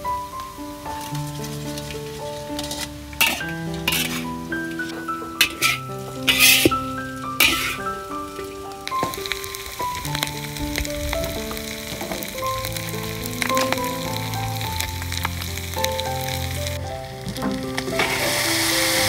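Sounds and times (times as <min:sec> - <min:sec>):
food sizzling in a wok: 0:00.0 - 0:19.0
gentle melody of held notes: 0:00.0 - 0:19.0
metal spatula knocking pan: 0:02.6 - 0:08.0.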